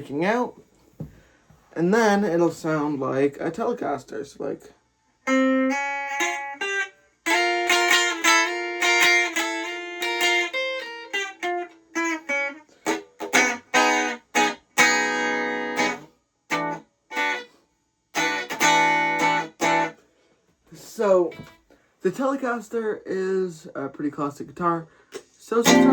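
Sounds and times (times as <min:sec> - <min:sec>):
twangy electric guitar: 0:05.3 - 0:17.4, 0:18.2 - 0:19.9, 0:25.6 - 0:25.9.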